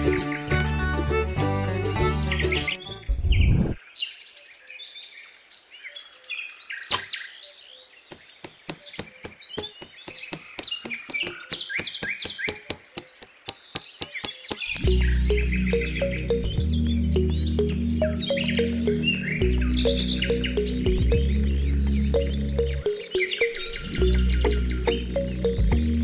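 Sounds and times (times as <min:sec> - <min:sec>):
birds chirping: 0:00.0 - 0:26.0
hammer tapping rods: 0:08.1 - 0:15.0.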